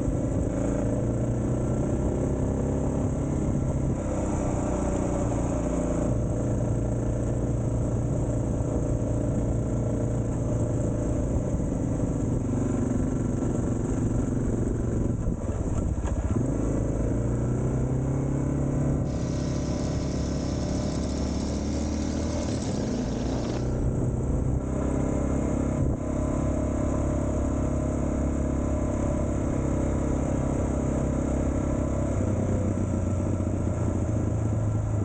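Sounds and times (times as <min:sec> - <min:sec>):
motorcycle engine running: 0:00.0 - 0:29.6
steady hiss: 0:19.1 - 0:23.7.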